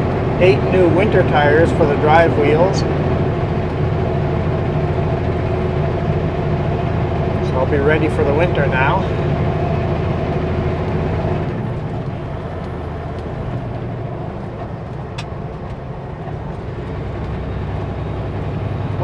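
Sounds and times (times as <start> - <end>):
road noise: 0.0 - 19.0
truck diesel engine hum: 0.0 - 19.0.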